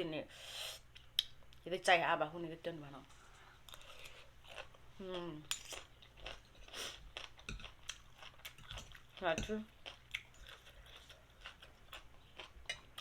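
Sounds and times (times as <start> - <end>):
person chewing noodles: 3.6 - 13.0.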